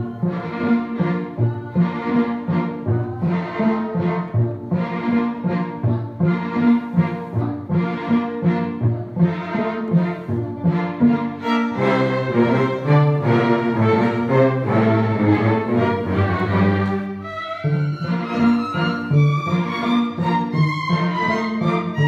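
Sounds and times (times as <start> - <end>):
orchestral brass and strings chords: 9.9 - 22.0.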